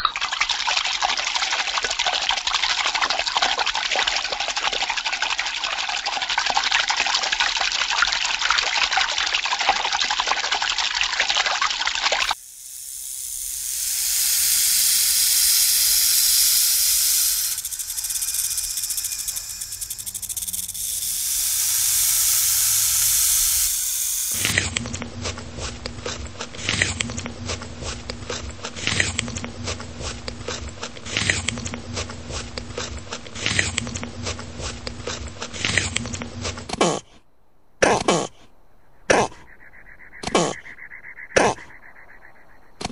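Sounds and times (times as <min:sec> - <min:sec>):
snake hissing: 0:12.2 - 0:24.6
steady low hum: 0:12.3 - 0:36.7.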